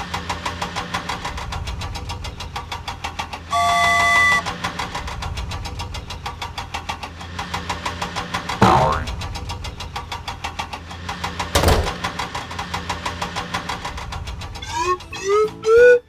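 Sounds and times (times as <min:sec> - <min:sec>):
cartoon engine chugging: 0:03.5 - 0:05.0, 0:08.6 - 0:09.5, 0:14.4 - 0:16.0
bouncy tune of gliding notes: 0:14.6 - 0:16.0.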